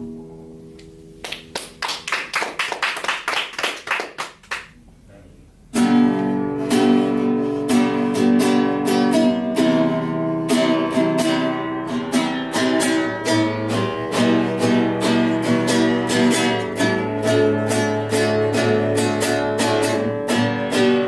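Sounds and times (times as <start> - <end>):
acoustic guitar strumming chords: 0.0 - 1.2, 5.7 - 21.0.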